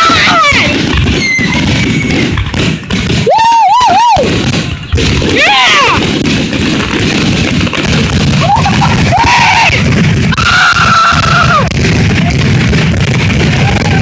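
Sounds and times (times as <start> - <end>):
people cheering: 0.0 - 1.9, 3.1 - 4.6, 5.2 - 6.1, 8.2 - 12.6, 13.2 - 14.0
fireworks bursting: 0.0 - 14.0
long woo whoops: 3.2 - 4.3.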